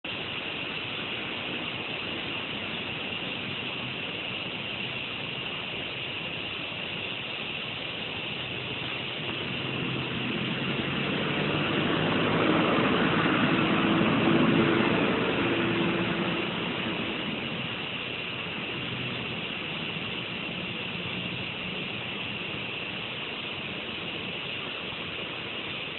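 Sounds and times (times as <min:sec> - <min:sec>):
low rumbling: 0:08.4 - 0:24.2
cicada shrilling: 0:08.9 - 0:23.0.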